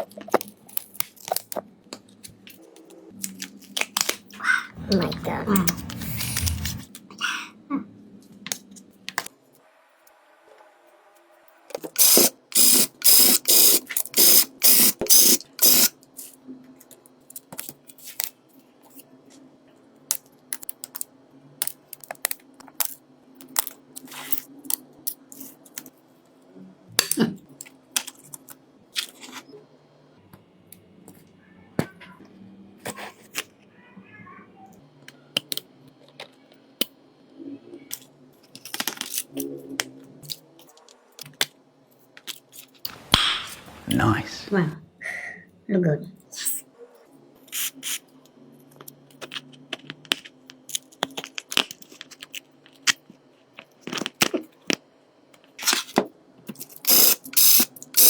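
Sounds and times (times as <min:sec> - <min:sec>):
small parts clicking and tapping: 0:20.1 - 0:26.0, 0:48.8 - 0:55.8, 0:56.5 - 0:58.0.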